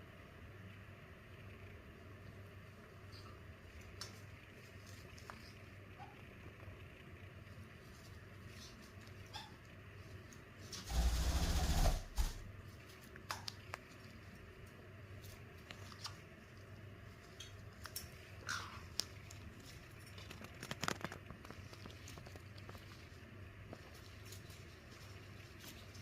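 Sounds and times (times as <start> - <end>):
small scratchy clicks: 13.0 - 26.0.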